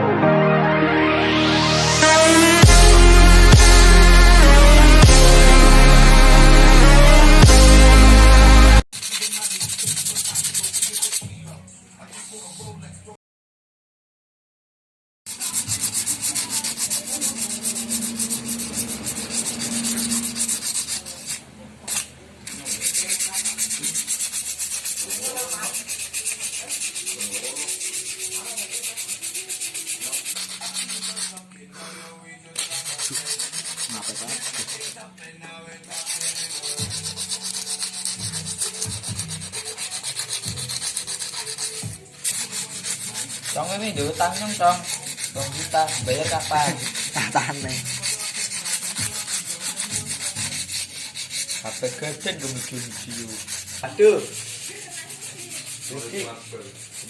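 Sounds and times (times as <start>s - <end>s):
sandpaper scrubbing metal: 2.0s - 11.4s, 15.3s - 31.5s, 32.5s - 35.1s, 35.8s - 57.0s.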